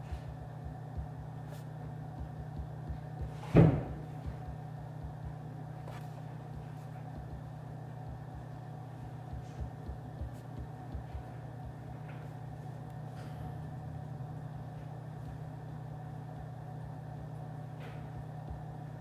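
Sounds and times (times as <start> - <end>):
steady low hum: 0.0 - 19.0
loud dull thud: 3.5 - 4.0.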